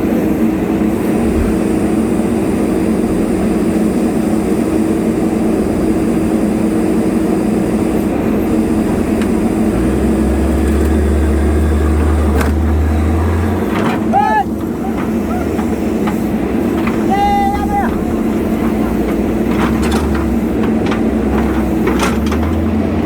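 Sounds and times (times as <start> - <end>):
heavy diesel engine running: 0.0 - 23.0
deep low drone: 1.0 - 2.2.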